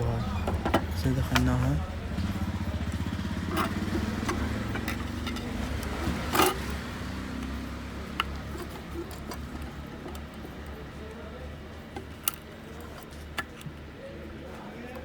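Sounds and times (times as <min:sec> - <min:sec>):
low motor hum: 0:00.0 - 0:12.0
clicks and knocks from handling parts: 0:03.3 - 0:15.0.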